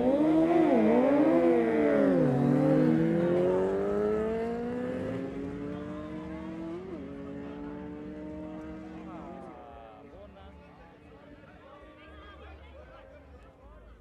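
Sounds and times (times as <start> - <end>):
motorcycle engine revving: 0.0 - 9.6
motorcycle accelerating away: 0.0 - 9.7.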